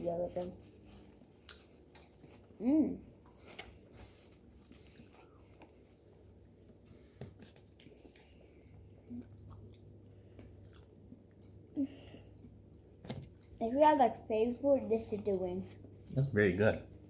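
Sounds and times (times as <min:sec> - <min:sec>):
people chewing: 0:00.0 - 0:13.6.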